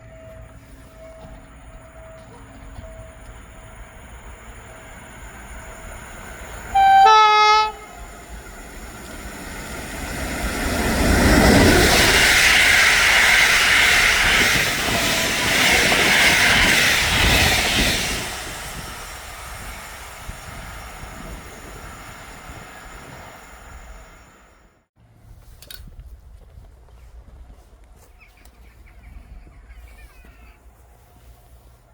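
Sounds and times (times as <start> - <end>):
train horn blast: 6.7 - 8.3.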